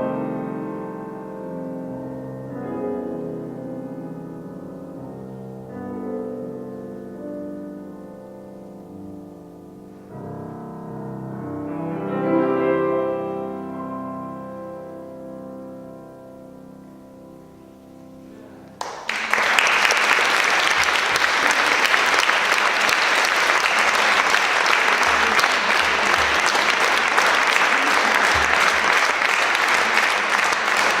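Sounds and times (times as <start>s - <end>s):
piano chord: 0.0s - 18.8s
audience applause: 18.8s - 31.0s.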